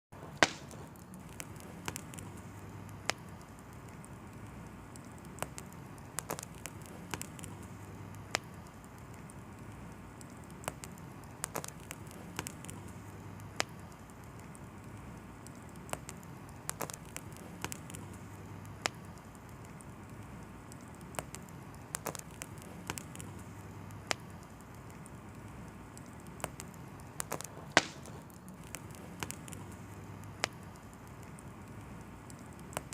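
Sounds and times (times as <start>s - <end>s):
wood fire crackling: 0.1s - 32.9s
low hiss of fire: 0.2s - 32.9s.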